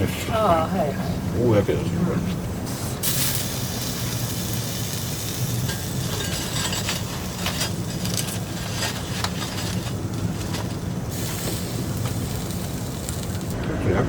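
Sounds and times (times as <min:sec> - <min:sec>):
steak sizzling over fire: 0:02.7 - 0:13.6.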